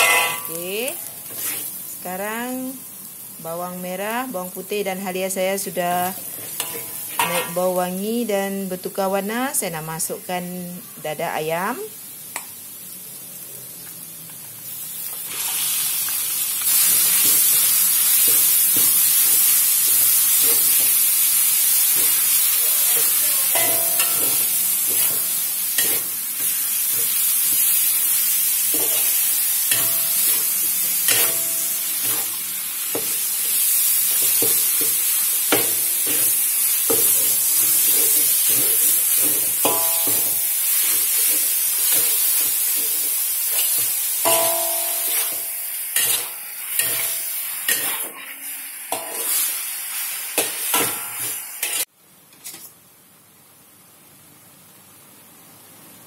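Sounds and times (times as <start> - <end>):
metal spatula scraping a wok: 0.0 - 0.6, 1.2 - 1.8, 6.3 - 7.6, 16.7 - 32.4, 35.7 - 49.6, 50.4 - 52.7
meat sizzling in hot oil: 0.0 - 7.5, 11.6 - 51.9.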